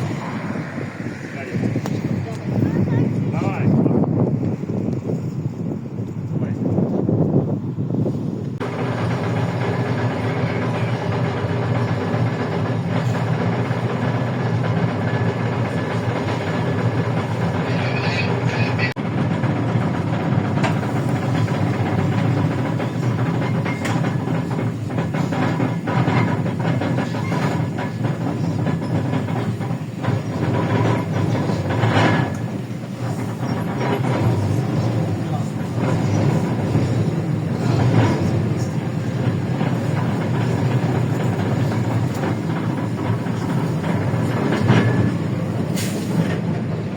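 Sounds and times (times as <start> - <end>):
bus engine running: 0.0 - 46.9
road noise: 0.0 - 46.9.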